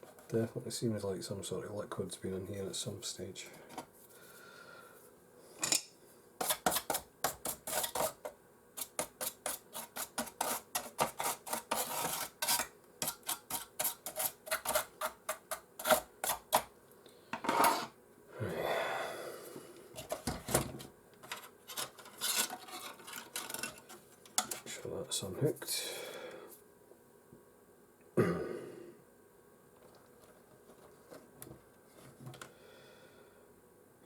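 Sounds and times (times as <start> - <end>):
rubbing scrape: 8.8 - 15.2.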